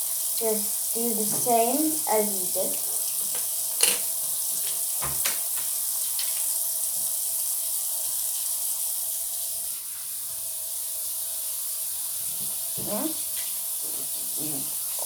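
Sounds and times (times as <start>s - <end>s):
steady high hiss: 0.0s - 7.1s.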